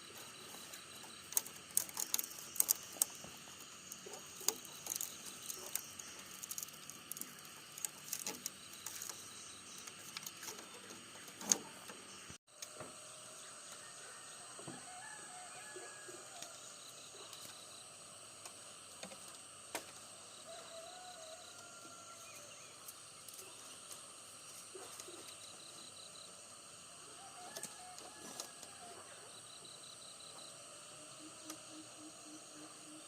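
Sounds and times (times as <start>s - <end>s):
high-pitched insect drone: 0.0s - 12.3s, 20.1s - 33.0s.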